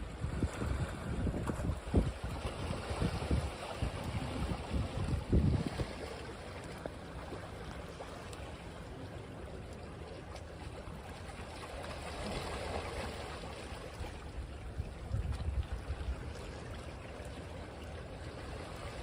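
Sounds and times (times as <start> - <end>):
wind rumble on microphone: 0.0 - 6.8, 13.9 - 16.9
ocean waves on beach: 0.0 - 19.0.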